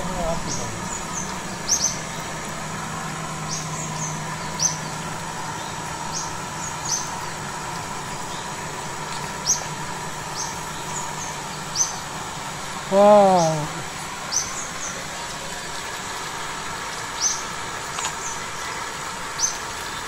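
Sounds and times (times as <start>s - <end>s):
steady low hum: 0.0s - 20.0s
small bird chirping: 0.2s - 2.4s, 3.4s - 7.4s, 10.3s - 12.1s, 14.3s - 15.3s.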